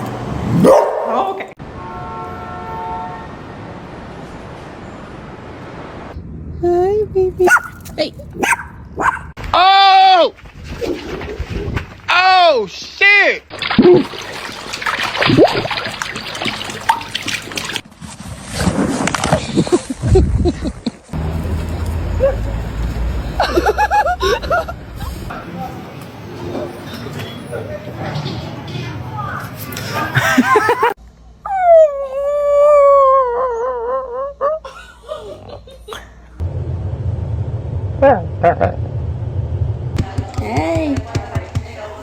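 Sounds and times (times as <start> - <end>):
rising and falling voice sounds: 6.5 - 7.5, 37.9 - 39.1
water splashing and sloshing: 10.4 - 12.1, 13.5 - 20.0.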